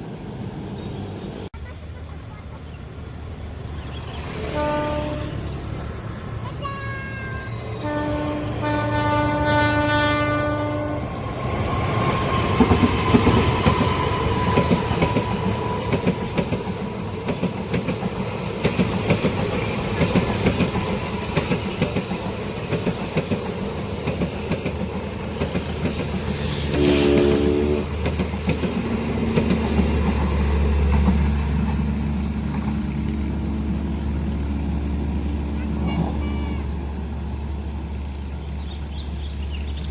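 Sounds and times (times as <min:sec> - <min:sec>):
train horn: 0:04.4 - 0:05.6, 0:06.6 - 0:11.2, 0:26.4 - 0:28.0, 0:35.4 - 0:36.9.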